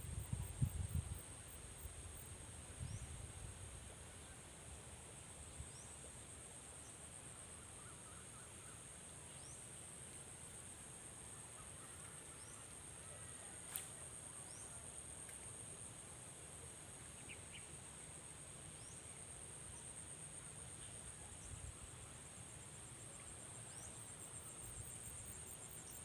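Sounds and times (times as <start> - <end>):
high-pitched insect chorus: 17.0 - 26.0.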